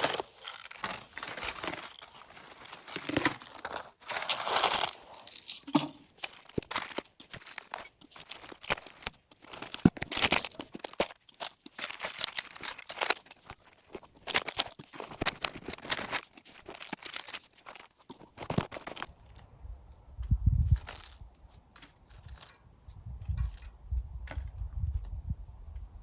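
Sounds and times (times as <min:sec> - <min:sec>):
dry leaves crackling and tearing: 0:00.0 - 0:19.6, 0:20.6 - 0:25.1.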